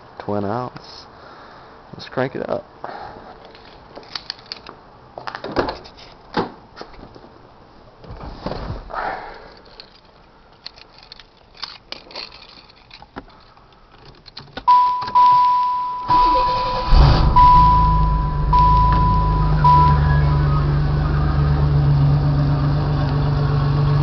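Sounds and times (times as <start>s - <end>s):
keys and handling clicks: 3.4s - 4.8s, 9.5s - 16.1s
car warning chime beeps: 14.7s - 21.3s
car engine idling: 16.0s - 24.0s.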